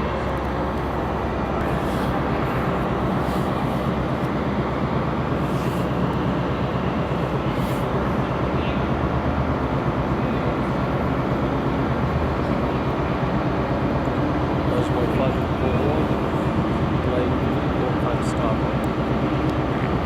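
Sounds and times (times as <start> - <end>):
train engines humming: 0.0 - 20.0.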